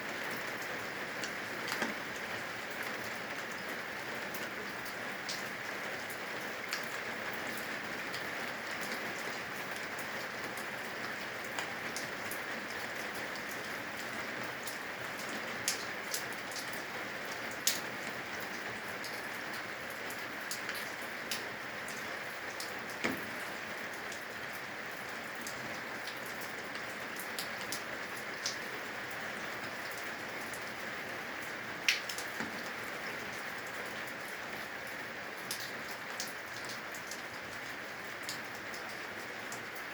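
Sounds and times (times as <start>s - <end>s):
rain falling on roof eaves: 0.0s - 39.9s
sharp water drips: 31.5s - 37.3s.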